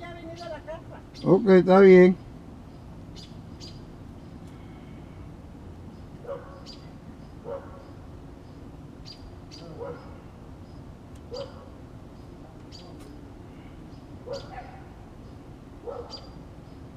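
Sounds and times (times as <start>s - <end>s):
low background hum: 0.0s - 16.9s
bird chirps: 2.1s - 5.2s, 5.8s - 16.9s
dog barking: 6.2s - 6.8s, 7.4s - 7.9s, 9.8s - 10.1s, 11.3s - 11.8s, 14.2s - 14.9s, 15.8s - 16.4s.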